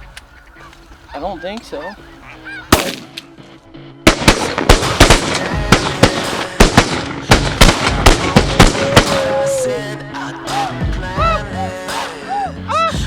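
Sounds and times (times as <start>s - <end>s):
goose calls: 0.0s - 2.8s
shotgun blasts: 2.7s - 3.2s, 4.1s - 9.4s.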